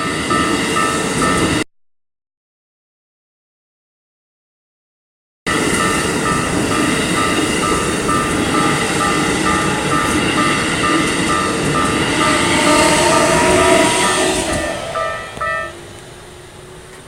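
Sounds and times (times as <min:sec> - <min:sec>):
level crossing warning bell: 0:00.0 - 0:01.6, 0:05.5 - 0:16.0
train wheels rumbling and clattering: 0:05.5 - 0:17.0.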